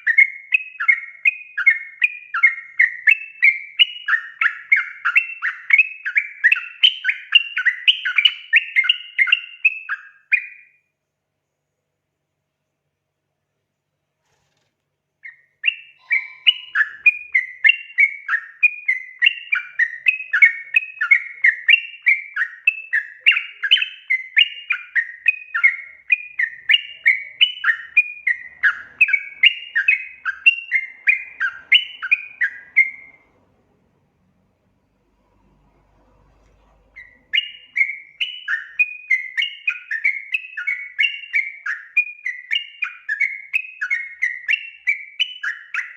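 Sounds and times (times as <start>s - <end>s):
bulbul singing bubbly whistles: 15.2s - 33.2s, 37.0s - 45.9s.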